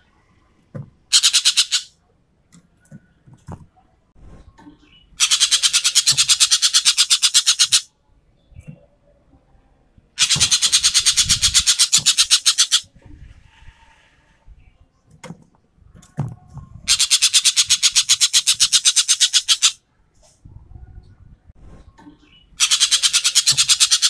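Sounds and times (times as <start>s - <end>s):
bird rattling call: 1.1s - 1.9s, 5.2s - 7.9s, 10.2s - 12.9s, 16.9s - 19.8s, 22.6s - 24.0s.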